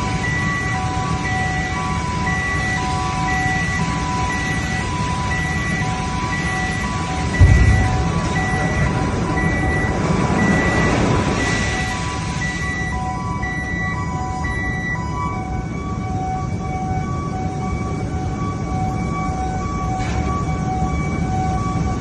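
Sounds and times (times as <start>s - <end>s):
electronic warning tone beeping: 0.2s - 15.4s
rumbling industrial din: 7.2s - 12.2s
heavy low thump: 7.4s - 9.5s.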